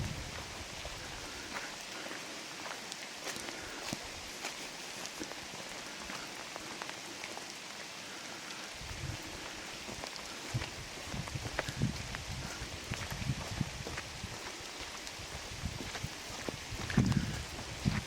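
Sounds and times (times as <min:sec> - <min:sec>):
steady rain falling: 0:00.0 - 0:18.0
raindrops ticking: 0:00.8 - 0:13.2.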